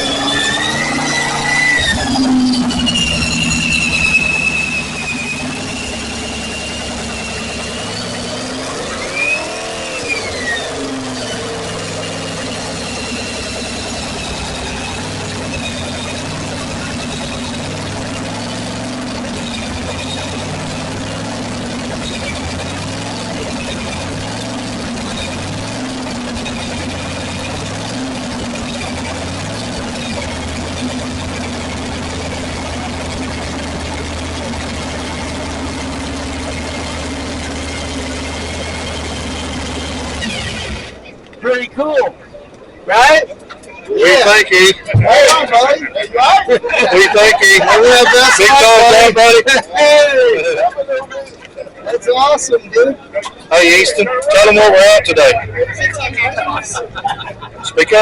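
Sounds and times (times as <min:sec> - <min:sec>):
engine revving: 0:00.0 - 0:41.3, 0:46.5 - 0:50.6, 0:53.3 - 0:58.0
high whine: 0:00.0 - 0:41.6
engine idling: 0:00.0 - 0:58.0.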